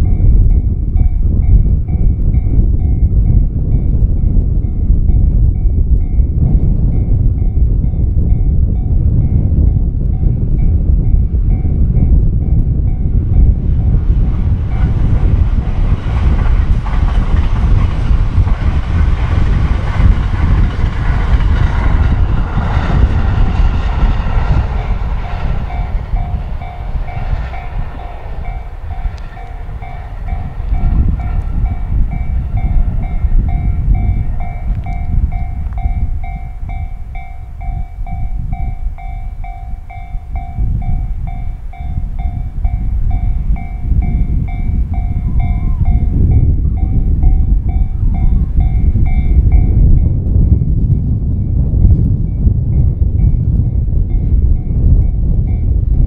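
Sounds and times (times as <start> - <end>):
electric train passing at speed: 0.0 - 56.0
freight train rumble: 0.0 - 56.0
steady pulsing tone: 20.0 - 55.9.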